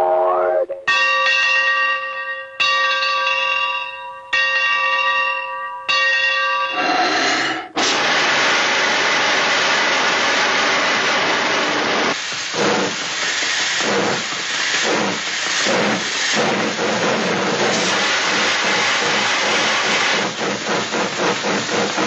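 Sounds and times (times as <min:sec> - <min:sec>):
bell ringing: 0:00.9 - 0:06.8
loud steady hiss: 0:07.4 - 0:22.0.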